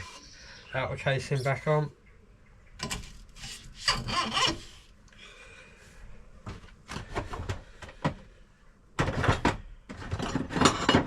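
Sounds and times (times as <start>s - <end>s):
metal parts rubbing and scraping: 2.8s - 4.9s.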